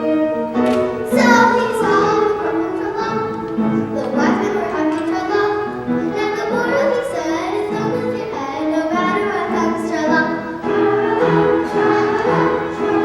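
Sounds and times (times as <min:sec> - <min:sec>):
children's choir singing: 0:00.0 - 0:13.0.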